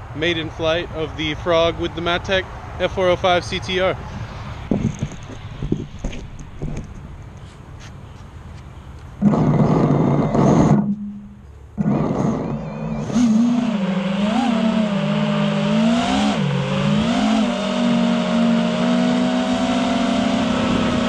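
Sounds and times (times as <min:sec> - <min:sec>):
quadcopter motors whining: 0:11.8 - 0:19.3.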